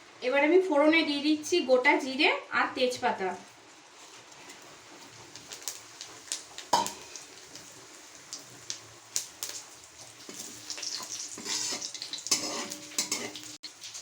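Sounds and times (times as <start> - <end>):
spices sizzling in hot oil: 0.0 - 14.0
sharp pops and crackles: 5.0 - 12.4.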